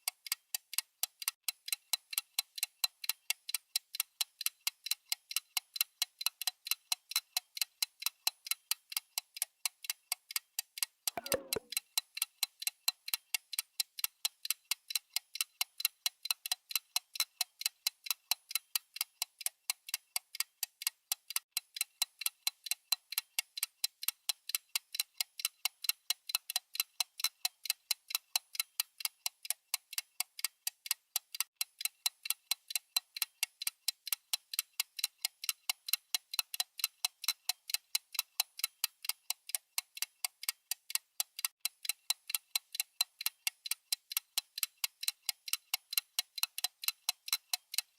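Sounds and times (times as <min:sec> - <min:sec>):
digital timer ticking: 0:00.0 - 0:47.9.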